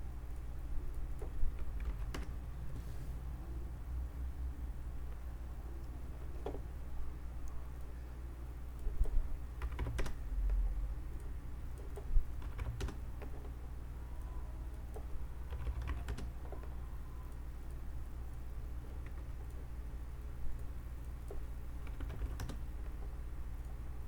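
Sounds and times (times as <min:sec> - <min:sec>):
steady low hum: 0:00.0 - 0:24.0
keyboard typing and clicking: 0:00.9 - 0:02.6, 0:08.8 - 0:13.6, 0:14.2 - 0:19.6, 0:20.5 - 0:23.8.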